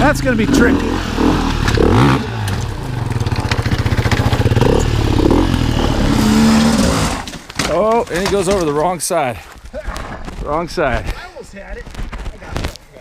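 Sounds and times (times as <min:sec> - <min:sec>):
dirt bike engine revving: 0:00.0 - 0:07.3
knocks and clatter: 0:01.5 - 0:08.9.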